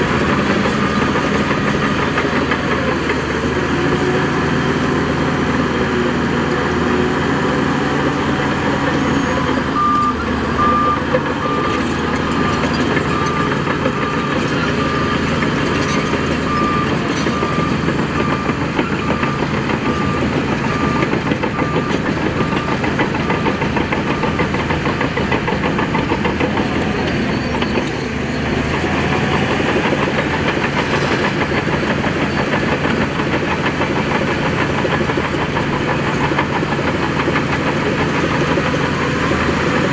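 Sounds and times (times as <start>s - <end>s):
heavy machinery engine running: 0.0s - 39.9s
reversing alarm beeping: 8.5s - 29.6s.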